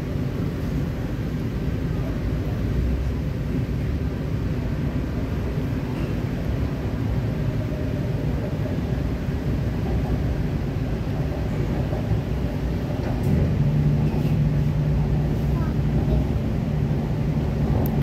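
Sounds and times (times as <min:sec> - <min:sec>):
train wheels rumbling on rail: 0:00.0 - 0:18.0
low steady hum: 0:12.4 - 0:18.0.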